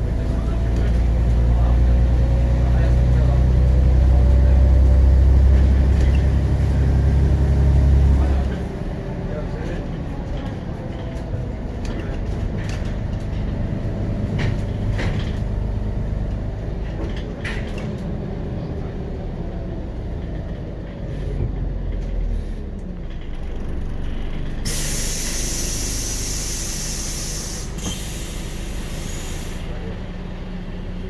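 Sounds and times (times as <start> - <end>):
diesel bus engine running: 0.0 - 31.0
compressed air hiss: 24.6 - 29.7.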